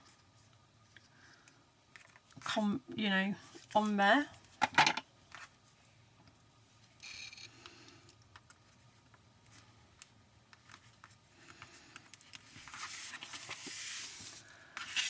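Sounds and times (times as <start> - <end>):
paper rustling: 10.6 - 15.0.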